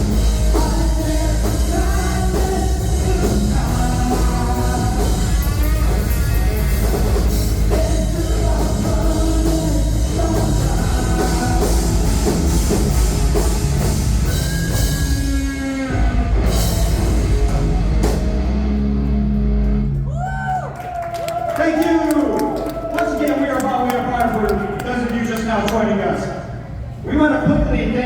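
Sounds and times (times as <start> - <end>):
live rock band playing: 0.0 - 20.0
person singing: 0.1 - 12.7.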